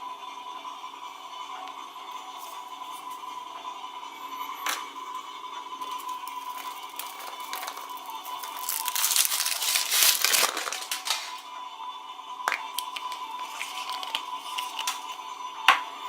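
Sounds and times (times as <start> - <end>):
wrapper crinkling and tearing: 5.9 - 11.5, 12.6 - 15.2.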